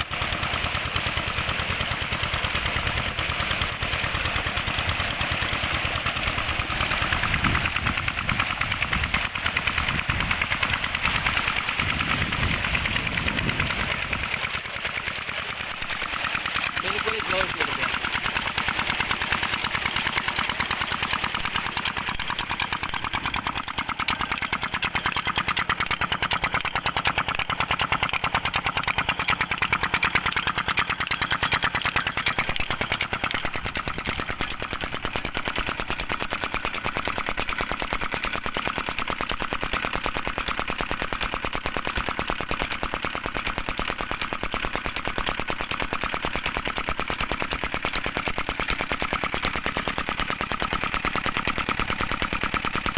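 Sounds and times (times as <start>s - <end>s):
diesel engine running: 0.0s - 37.8s.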